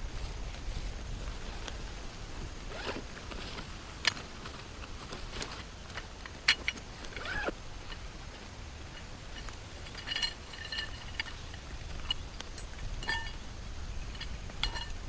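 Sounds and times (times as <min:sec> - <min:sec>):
light ringing clink: 0:06.0 - 0:15.0.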